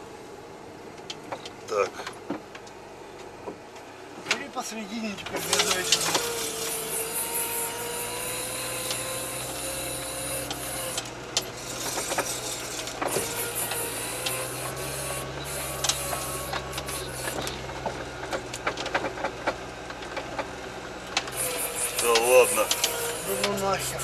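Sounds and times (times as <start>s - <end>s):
vehicle engine whining under load: 0.0s - 24.0s
knocks and crackles: 8.7s - 23.6s.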